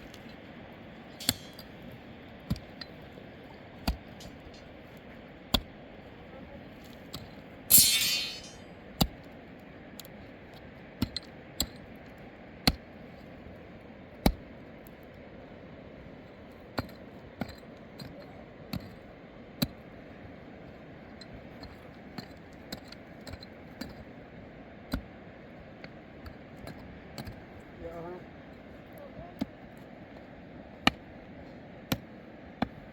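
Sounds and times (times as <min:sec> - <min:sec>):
loud rushing hiss: 0:07.7 - 0:08.6.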